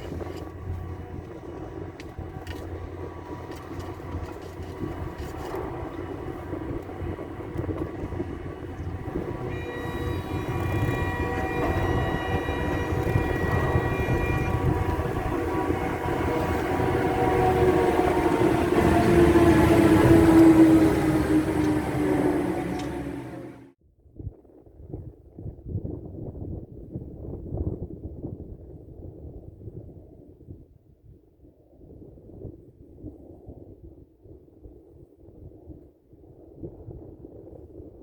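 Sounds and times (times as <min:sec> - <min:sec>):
chairlift haul rope rumble: 0:00.0 - 0:23.7
steady whining tones: 0:00.0 - 0:23.8.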